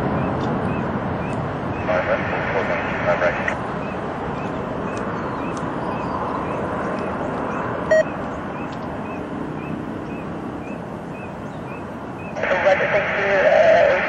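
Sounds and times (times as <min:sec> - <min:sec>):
distant jet engine roar: 0:00.0 - 0:14.0
short beep: 0:07.9 - 0:08.1.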